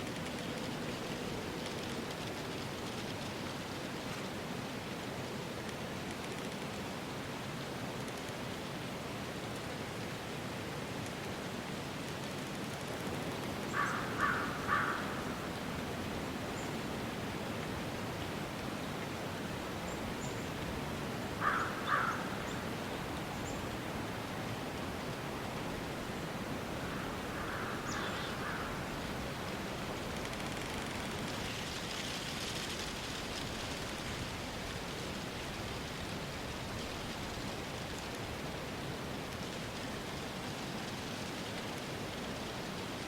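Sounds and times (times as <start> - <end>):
outdoor ambience hiss: 0.0 - 43.0
crow cawing: 13.7 - 15.5, 21.4 - 22.6, 26.8 - 28.9.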